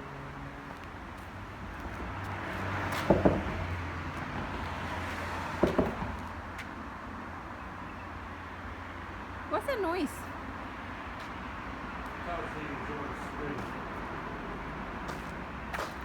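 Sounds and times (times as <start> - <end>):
rush of tyres on bridge: 0.0 - 7.4
wheels clunking over expansion joints: 1.8 - 6.6.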